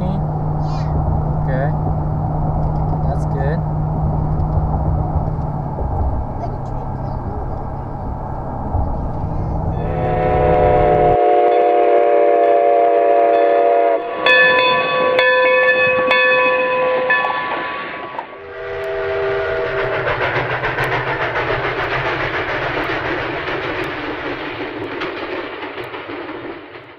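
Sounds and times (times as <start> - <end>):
train rumble: 0.0 - 26.9
train horn blasts: 9.7 - 20.1.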